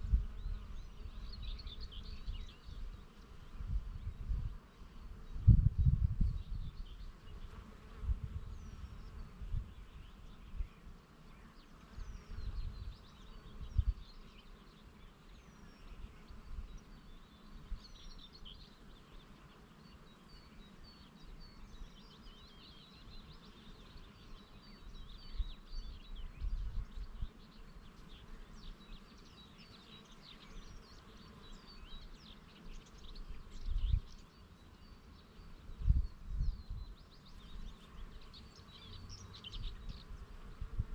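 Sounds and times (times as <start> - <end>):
wind gusts on microphone: 0.0 - 10.7, 12.0 - 14.1, 25.2 - 27.4, 33.3 - 34.2, 35.6 - 38.0, 39.1 - 40.9
small birds chirping: 0.0 - 40.9.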